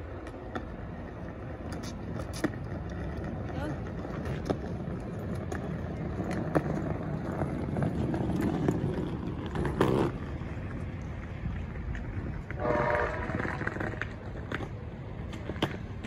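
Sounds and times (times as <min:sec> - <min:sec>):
diesel train rumbling: 0:00.0 - 0:16.0.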